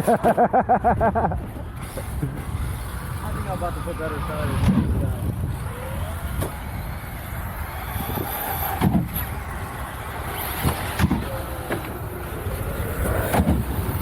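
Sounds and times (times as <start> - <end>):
electric motors whining: 0.0 - 14.0
wind rumble on microphone: 2.2 - 9.4.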